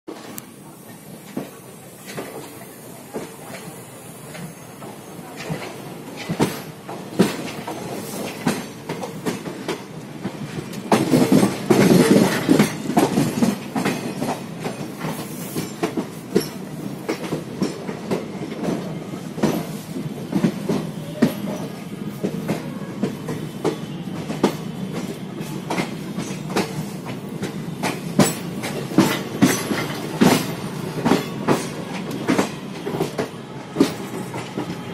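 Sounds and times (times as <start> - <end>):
train wheels clattering over rail joints: 1.2 - 34.9.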